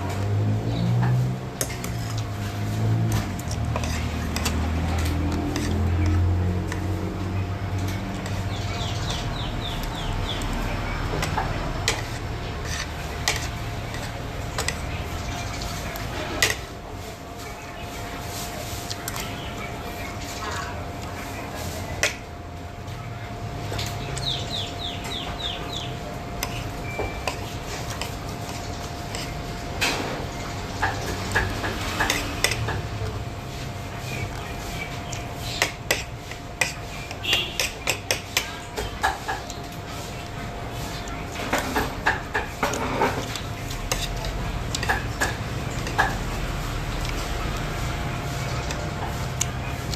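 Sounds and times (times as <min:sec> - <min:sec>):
steady background hum: 0:00.0 - 0:49.9
cutlery clinking against a dish: 0:03.0 - 0:07.0, 0:07.8 - 0:16.7, 0:21.6 - 0:22.3, 0:23.7 - 0:33.1, 0:35.1 - 0:39.7, 0:41.0 - 0:46.4
cutlery clinking on plates: 0:30.8 - 0:32.9, 0:35.6 - 0:39.6, 0:41.3 - 0:46.3.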